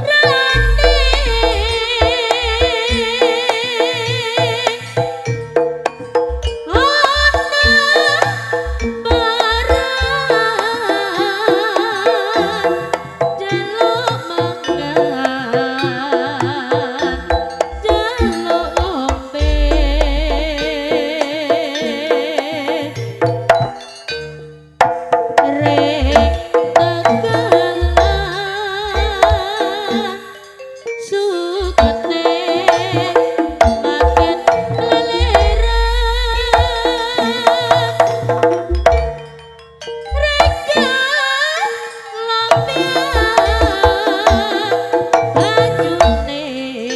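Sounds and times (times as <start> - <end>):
hand drum strokes: 0.0 - 23.8, 31.6 - 39.2, 42.5 - 46.4
stepping pitched notes: 0.0 - 30.4, 31.0 - 46.8
wavering melody line: 0.0 - 46.9
deep low booms: 0.5 - 2.1, 19.4 - 20.8, 35.2 - 37.2
deep low note: 0.5 - 2.1, 19.4 - 20.8, 35.3 - 37.2.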